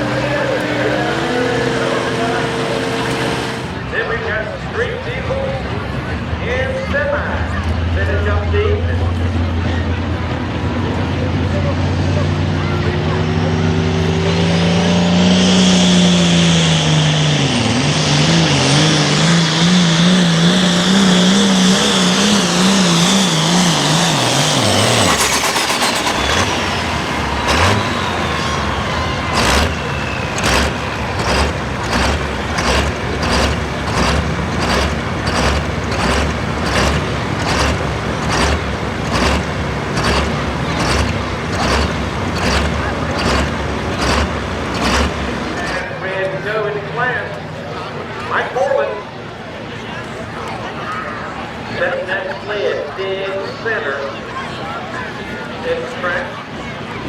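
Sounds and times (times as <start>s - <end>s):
high turbo whine: 0.0s - 4.9s, 7.5s - 48.5s
tractor engine at full throttle: 0.0s - 57.0s.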